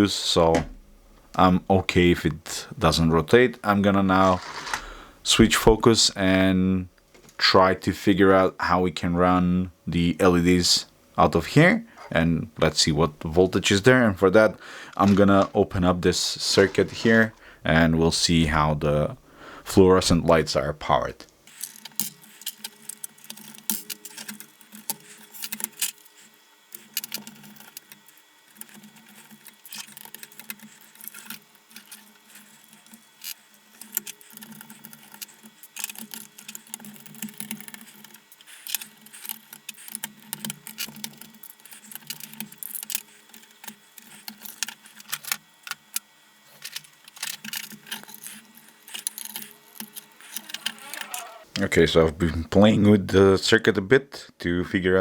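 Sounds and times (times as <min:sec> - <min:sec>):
screws and tools rattling: 0:04.1 - 0:05.0, 0:21.5 - 0:51.6.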